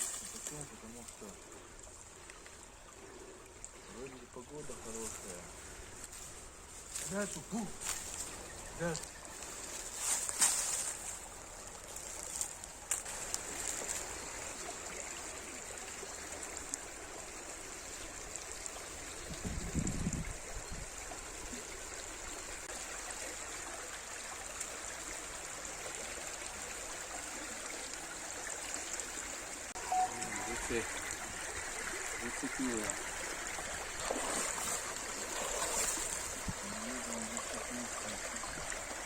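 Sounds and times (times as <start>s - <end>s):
river water rushing: 21.1s - 39.0s.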